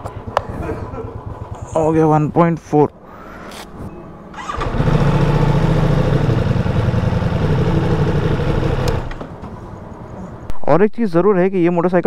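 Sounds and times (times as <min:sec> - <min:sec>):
motorcycle engine running: 0:00.0 - 0:02.6, 0:04.3 - 0:09.4.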